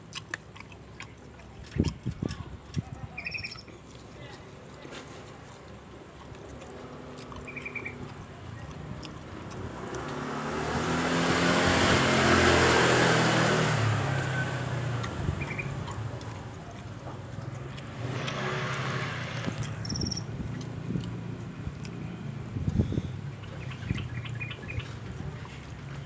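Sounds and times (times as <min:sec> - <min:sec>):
vehicle passing by: 0:06.3 - 0:26.0
fainter vehicle approaching: 0:06.7 - 0:26.0.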